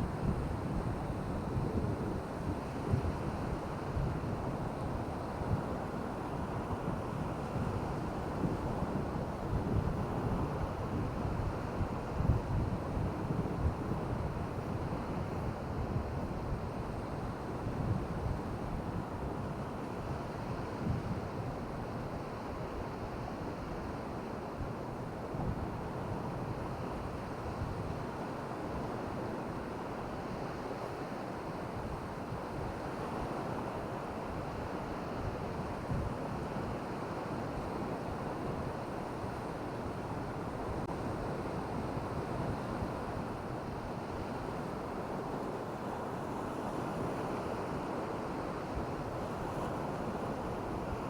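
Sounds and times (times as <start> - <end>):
wind rumbling on microphone: 0.0 - 22.1
surf washing on a beach: 0.0 - 51.0.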